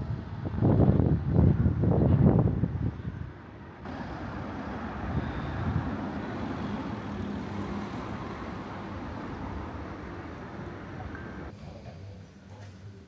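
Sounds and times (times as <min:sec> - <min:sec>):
traffic noise: 0:00.0 - 0:13.0
vehicle passing by: 0:03.8 - 0:11.5.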